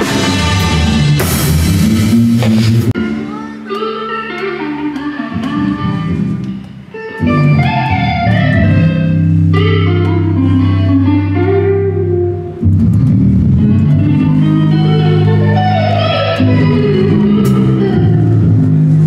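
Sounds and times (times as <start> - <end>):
bass guitar: 0.0 - 19.0
electric guitar runs: 3.8 - 19.0.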